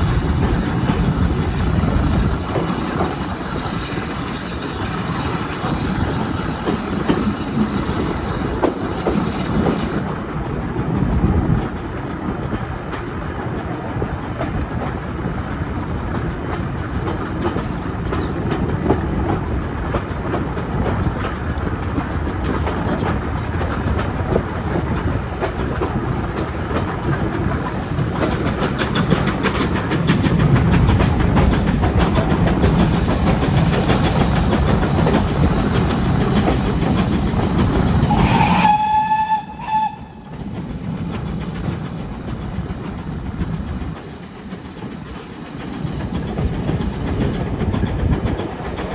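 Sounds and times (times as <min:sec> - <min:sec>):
train wheels clattering on rails: 0:00.0 - 0:48.9
train whistle blast: 0:38.0 - 0:40.4.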